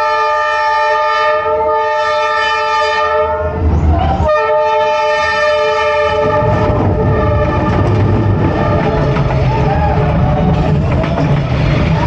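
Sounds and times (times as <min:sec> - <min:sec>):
train horn blast: 0:00.0 - 0:03.6, 0:04.2 - 0:09.1
train rumble: 0:01.4 - 0:12.0.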